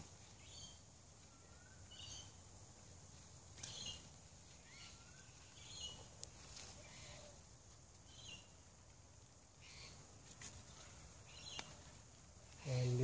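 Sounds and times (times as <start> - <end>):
faint bird chirps: 0.2 - 2.5, 3.6 - 7.4, 9.5 - 12.0.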